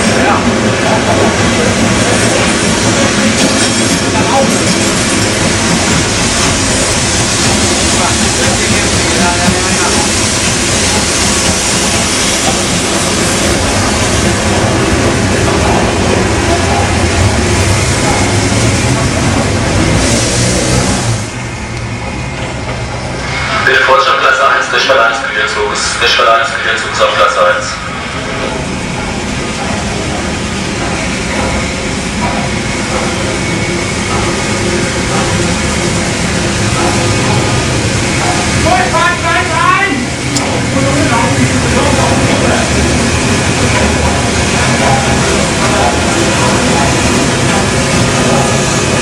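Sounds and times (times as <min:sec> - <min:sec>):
train passing: 0:00.0 - 0:49.0.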